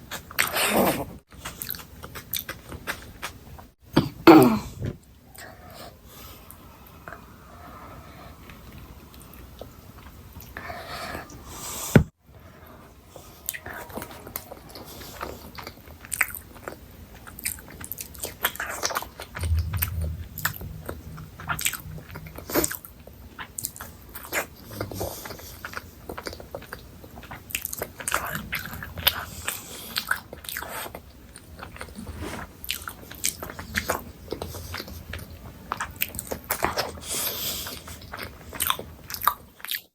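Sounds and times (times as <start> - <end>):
chewing and crunching: 0.0 - 3.7, 13.2 - 39.9.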